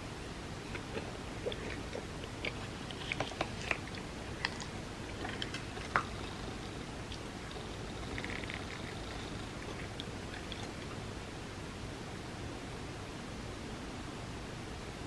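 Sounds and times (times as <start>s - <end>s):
person chewing wet food: 0.6s - 11.0s.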